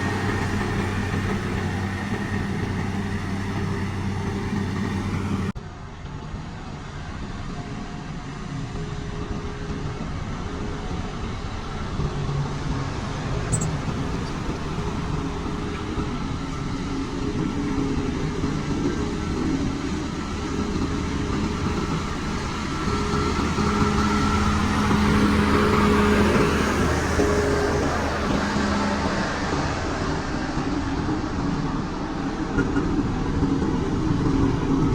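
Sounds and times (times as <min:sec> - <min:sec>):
diesel engine running under load: 0:00.0 - 0:34.9.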